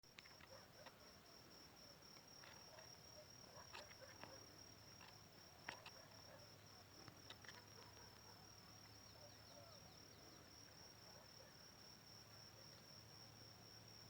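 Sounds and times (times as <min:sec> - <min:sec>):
crickets chirring: 0:00.1 - 0:14.0.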